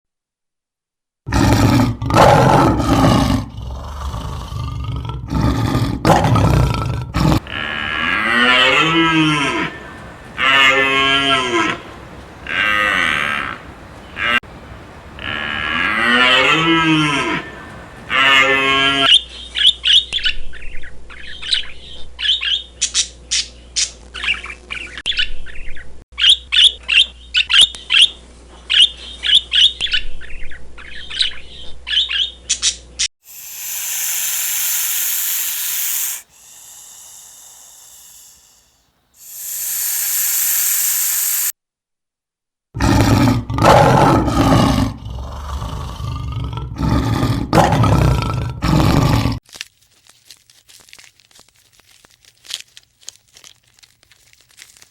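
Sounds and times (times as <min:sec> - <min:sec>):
loud pitched animal call: 0:07.4 - 0:19.1, 0:33.3 - 0:41.5
hissing noise: 0:33.2 - 0:41.6
rapid high bird chirping: 0:33.3 - 0:41.5
short pitched animal call: 0:33.3 - 0:41.5.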